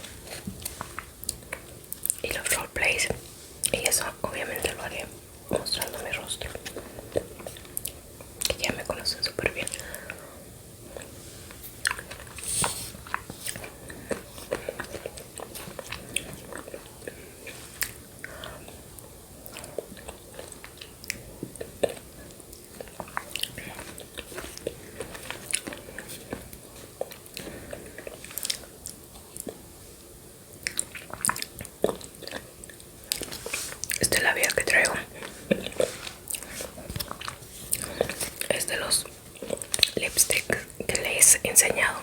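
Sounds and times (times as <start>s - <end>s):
mouth clicks and chewing: 11.8s - 12.4s, 13.0s - 18.8s, 19.4s - 29.6s, 30.5s - 38.6s, 39.4s - 41.1s.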